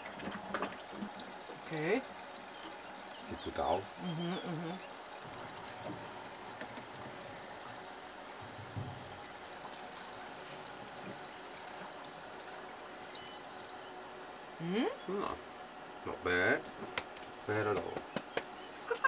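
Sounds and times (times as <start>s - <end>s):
tap water running into sink: 5.1s - 12.9s.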